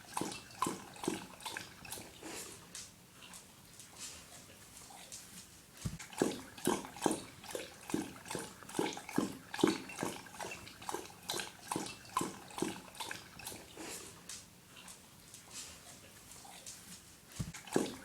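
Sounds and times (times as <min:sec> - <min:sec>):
dog lapping water: 0:00.0 - 0:03.4, 0:05.9 - 0:15.0, 0:17.4 - 0:18.0.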